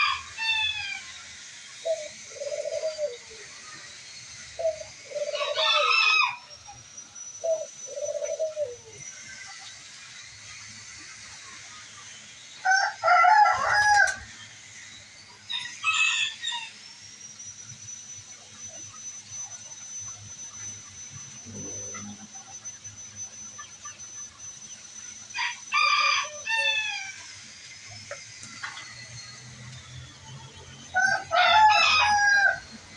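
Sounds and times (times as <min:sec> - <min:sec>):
rooster crowing: 0:00.0 - 0:01.1, 0:05.1 - 0:06.5, 0:12.6 - 0:14.3, 0:15.5 - 0:16.8, 0:25.3 - 0:27.3, 0:30.8 - 0:32.9.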